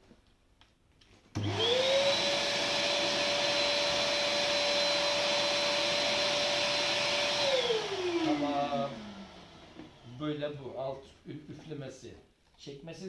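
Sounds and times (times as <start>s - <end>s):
vacuum motor whine: 1.4s - 10.2s.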